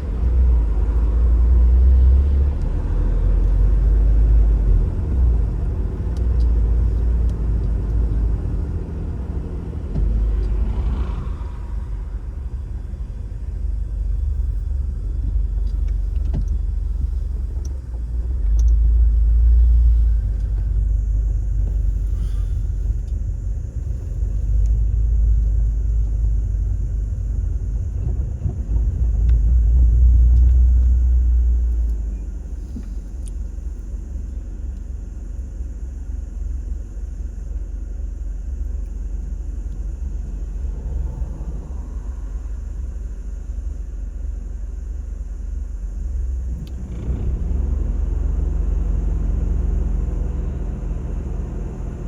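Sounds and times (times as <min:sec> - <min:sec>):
car road and engine rumble: 0:00.0 - 0:52.0.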